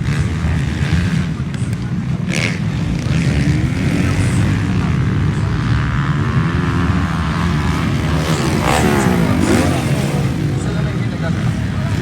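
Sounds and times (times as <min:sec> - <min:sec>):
motorcycle engines running: 0:00.0 - 0:12.0.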